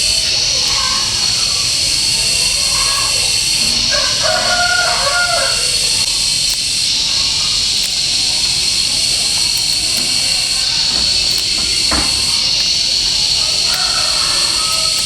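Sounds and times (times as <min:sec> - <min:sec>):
high-pitched hiss: 0:00.0 - 0:15.0
rooster crowing: 0:02.6 - 0:06.0, 0:10.9 - 0:15.0.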